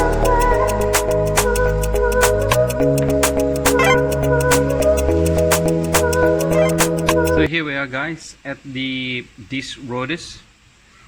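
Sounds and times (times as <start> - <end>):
background music with beat: 0.0 - 7.5.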